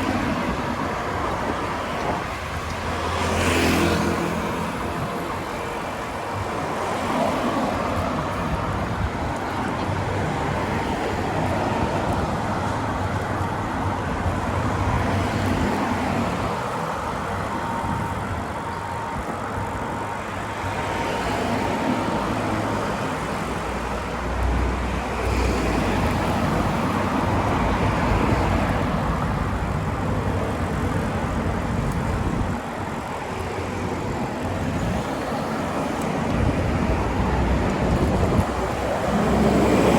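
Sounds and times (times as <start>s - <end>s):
vehicles passing on road: 0.0s - 39.9s.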